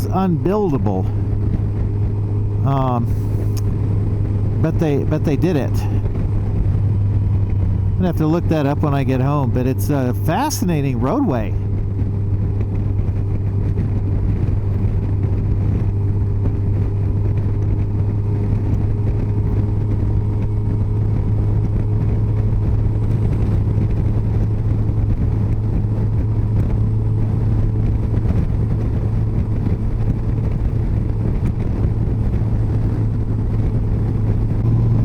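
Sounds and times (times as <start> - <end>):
motorcycle engine cruising: 0.0 - 35.0
wind and road noise: 0.0 - 35.0.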